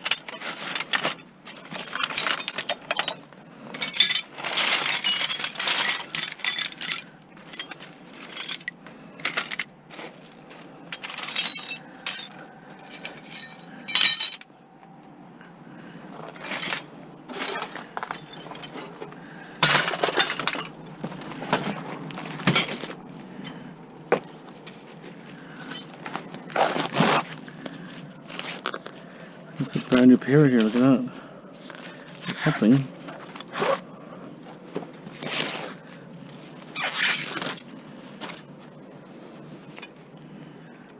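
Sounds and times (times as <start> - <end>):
small hard objects clinking: 0.0 - 14.5, 16.3 - 23.6.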